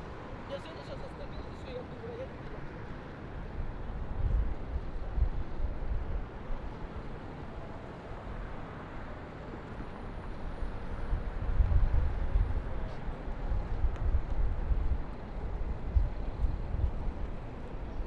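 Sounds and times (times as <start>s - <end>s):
wind buffeting microphone: 3.4s - 7.0s, 10.2s - 18.0s.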